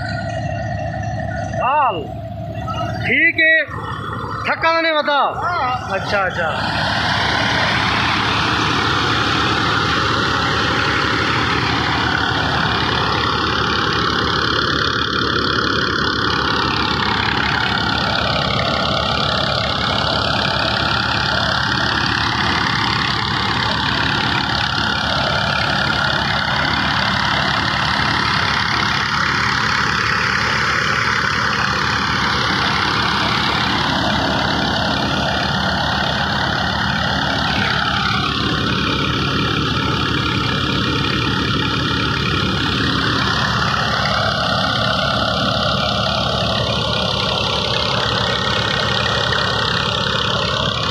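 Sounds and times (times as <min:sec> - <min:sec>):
tractor and thresher running: 0:00.0 - 0:50.9.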